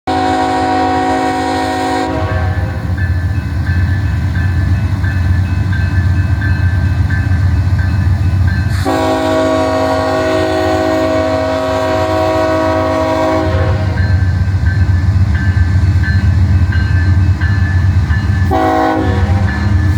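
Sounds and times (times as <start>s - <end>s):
multi-chime train horn blast: 0.1s - 3.0s, 8.7s - 14.3s, 18.4s - 19.9s
diesel locomotive engine rumbling: 0.1s - 19.9s
locomotive bell ringing: 2.2s - 10.2s, 12.6s - 19.9s.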